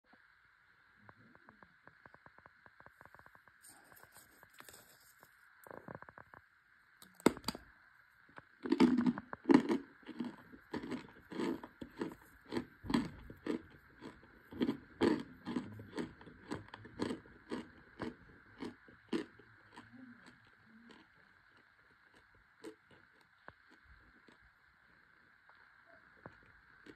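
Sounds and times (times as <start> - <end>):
crunching chews: 8.4 - 26.9
biting crack: 8.6 - 24.4.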